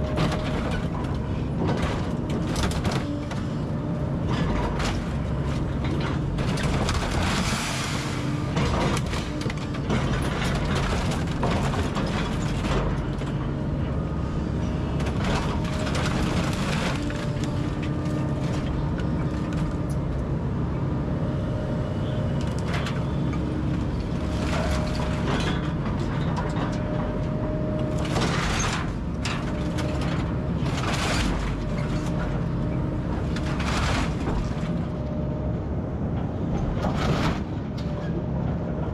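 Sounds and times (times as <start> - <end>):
walls crashing and crunching: 6.4 - 12.9.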